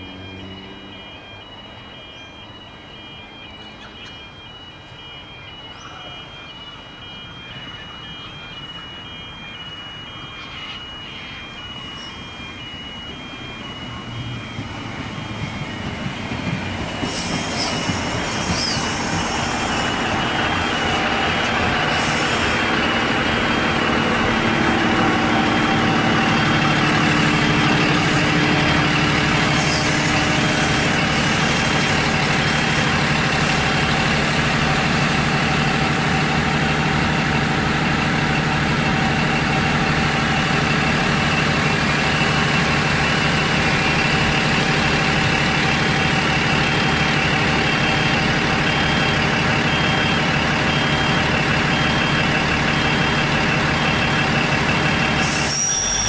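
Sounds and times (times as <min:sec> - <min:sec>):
diesel railcar approaching: 0:00.0 - 0:56.0
brief high squeals: 0:55.2 - 0:56.0.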